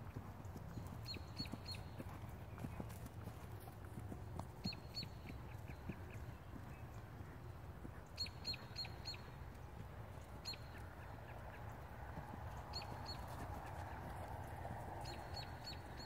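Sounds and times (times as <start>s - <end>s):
bird chirping: 0.7s - 2.7s, 4.6s - 9.4s, 10.2s - 11.9s, 12.5s - 13.9s, 15.0s - 16.0s.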